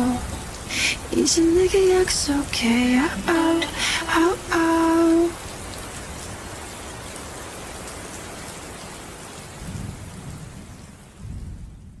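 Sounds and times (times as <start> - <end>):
steady rain falling: 0.0 - 12.0
low thunder rumbles: 9.6 - 12.0.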